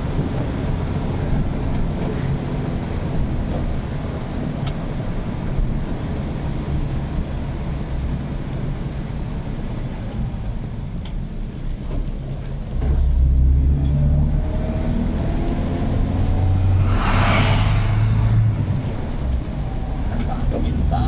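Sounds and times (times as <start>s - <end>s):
motorcycle engine drone: 14.9s - 20.0s.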